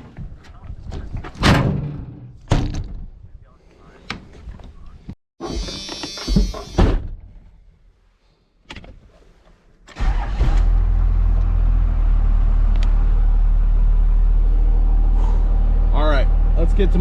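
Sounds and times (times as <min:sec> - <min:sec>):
truck engine starting and running: 0:09.8 - 0:17.0.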